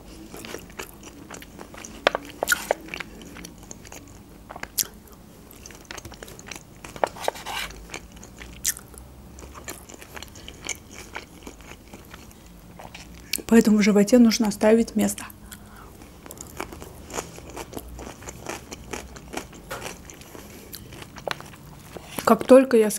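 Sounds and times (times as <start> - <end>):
person chewing and biting food: 0.1 - 13.4, 15.5 - 22.3.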